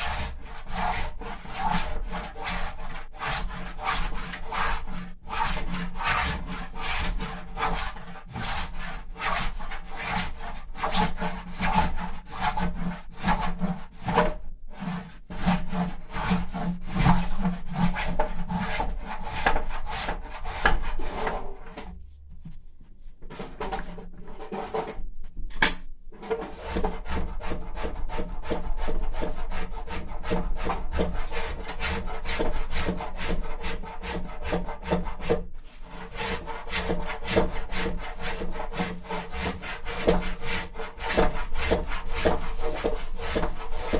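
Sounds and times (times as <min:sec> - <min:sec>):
hand tool scraping wood: 0:00.0 - 0:43.9
sharp click: 0:25.5 - 0:25.9.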